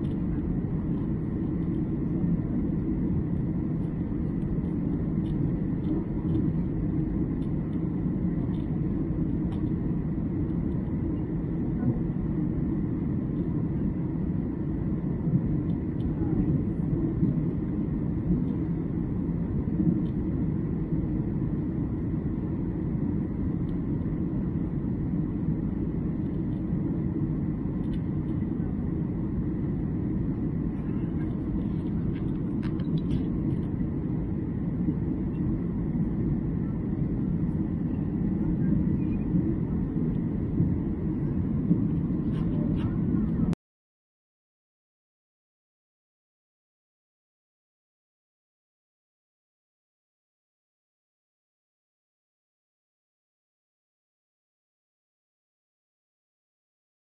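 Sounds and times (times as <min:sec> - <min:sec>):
jet airliner cabin rumble: 0:00.0 - 0:43.6.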